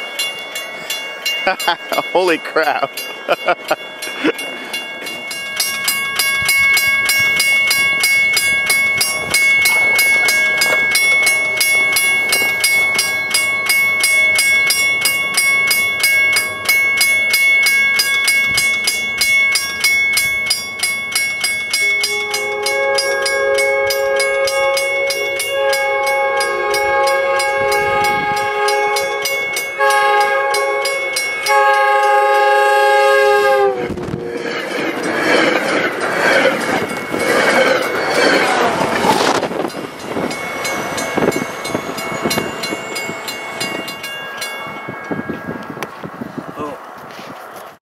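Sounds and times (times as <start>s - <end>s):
train rushing past: 0.0s - 47.8s
train horn chord: 21.8s - 34.5s.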